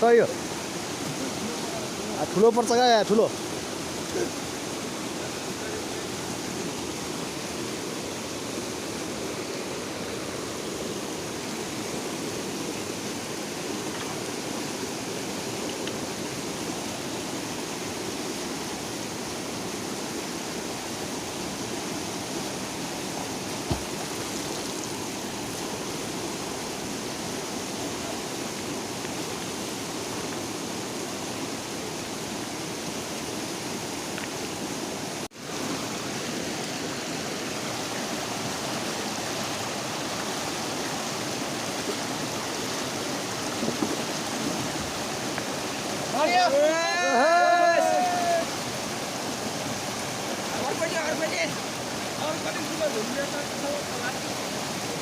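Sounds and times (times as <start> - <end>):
river water rushing: 0.0 - 55.0
short knock: 23.7 - 23.9.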